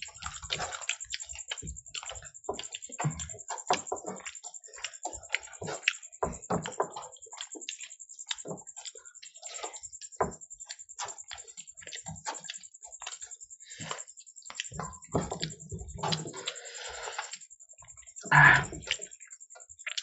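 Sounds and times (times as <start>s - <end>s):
people chewing and lip-smacking: 0.0s - 20.0s.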